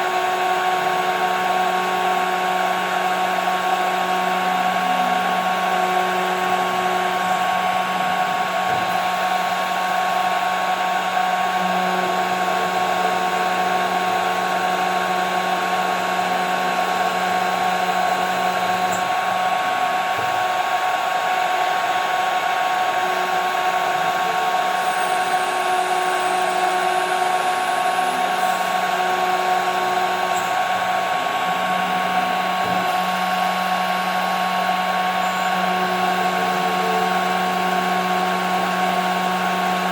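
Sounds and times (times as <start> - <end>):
machine spindle whine: 0.0 - 39.9.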